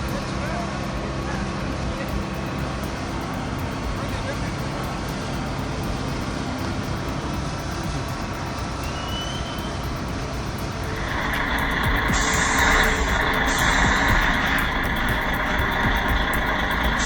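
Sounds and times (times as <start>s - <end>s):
heavy vehicle engine running: 0.0s - 17.0s.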